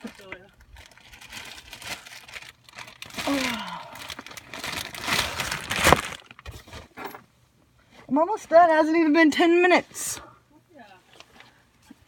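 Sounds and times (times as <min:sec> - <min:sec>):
material crinkling and rustling: 0:00.0 - 0:07.2.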